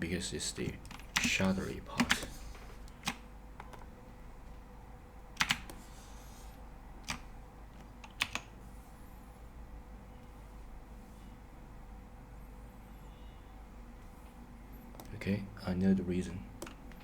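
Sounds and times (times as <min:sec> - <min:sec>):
faint steady hum: 0:00.0 - 0:17.0
keyboard key clicks: 0:00.6 - 0:03.9.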